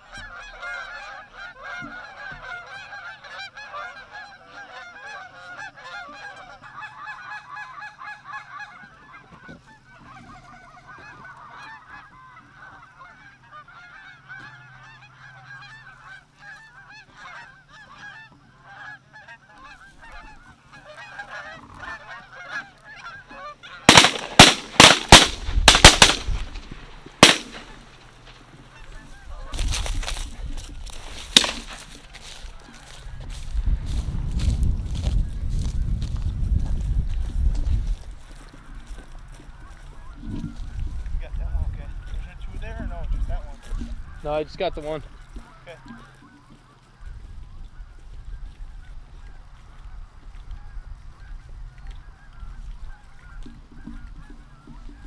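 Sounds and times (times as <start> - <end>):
geese honking: 0.0 - 55.0
shotgun blasts: 23.9 - 28.0, 31.3 - 31.8.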